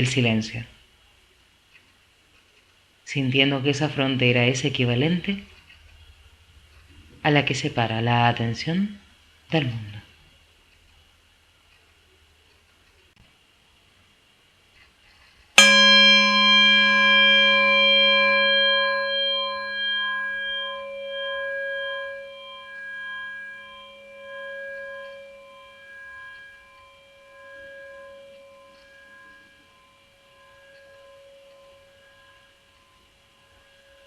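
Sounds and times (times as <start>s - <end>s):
singing bowl ringing: 15.6s - 34.0s.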